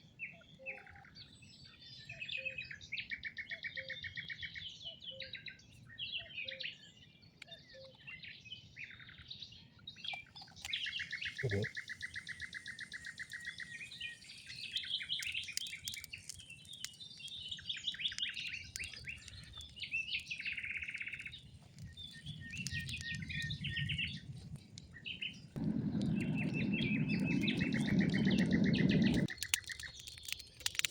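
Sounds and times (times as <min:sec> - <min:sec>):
songbirds singing: 0:00.0 - 0:30.9
low rushing noise: 0:25.6 - 0:29.3.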